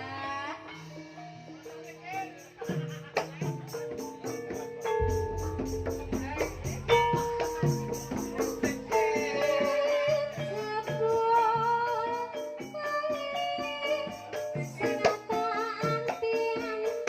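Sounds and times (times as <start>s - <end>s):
gamelan percussion: 0.0s - 17.0s
woman singing ornamented vocals: 5.0s - 17.0s.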